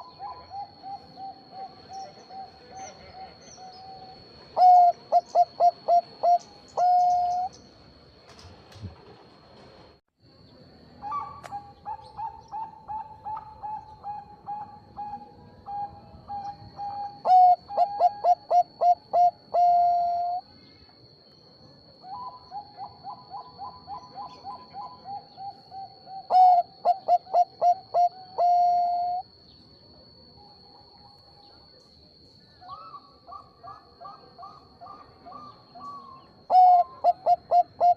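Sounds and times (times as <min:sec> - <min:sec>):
dove cooing: 0:00.0 - 0:07.6, 0:11.0 - 0:20.4, 0:22.0 - 0:29.3, 0:32.7 - 0:37.9.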